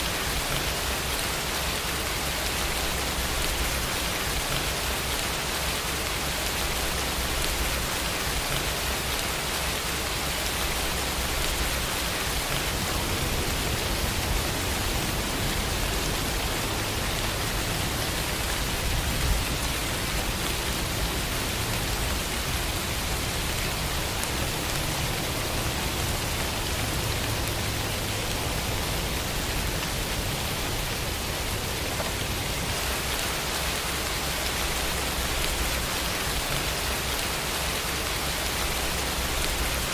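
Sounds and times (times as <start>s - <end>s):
rain hissing on surfaces: 0.0s - 39.9s
low rumble: 11.2s - 22.6s.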